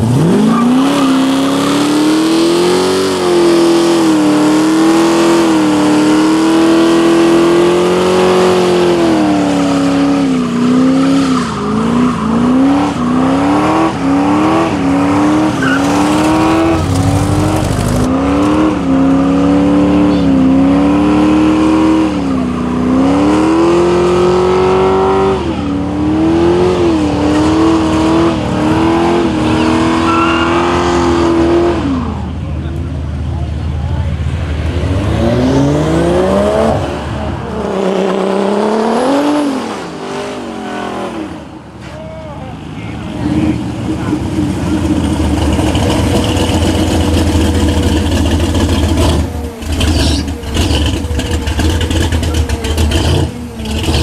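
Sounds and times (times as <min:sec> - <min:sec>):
engine revving high: 0:00.0 - 0:32.2, 0:34.6 - 0:41.5, 0:43.2 - 0:54.0
tyres squealing: 0:14.8 - 0:18.1, 0:29.4 - 0:31.1, 0:48.8 - 0:54.0.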